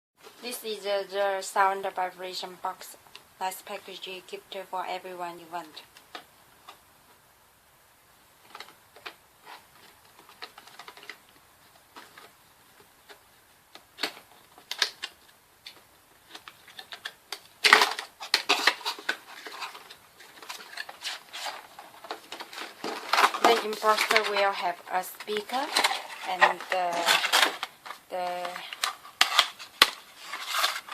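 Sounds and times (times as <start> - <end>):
packaging being handled: 8.4 - 30.9.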